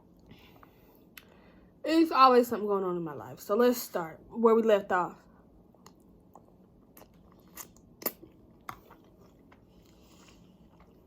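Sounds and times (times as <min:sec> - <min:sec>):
chewing and biting: 0:05.8 - 0:11.0.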